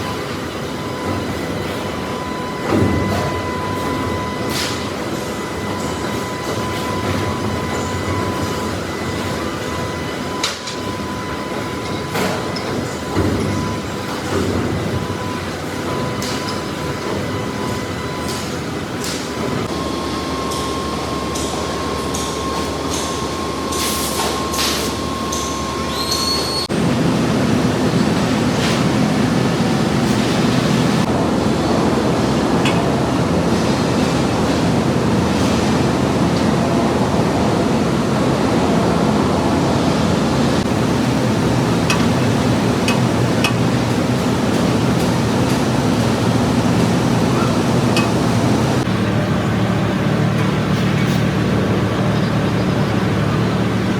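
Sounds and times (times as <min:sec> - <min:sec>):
high steady machine tone: 0:00.0 - 0:53.9
steel mill machinery din: 0:00.0 - 0:53.9
deep machinery rumble: 0:26.6 - 0:53.9.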